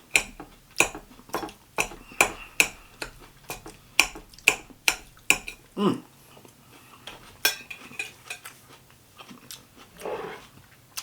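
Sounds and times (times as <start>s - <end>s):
utensil clinking on a dish: 0.0s - 5.8s, 7.1s - 8.6s.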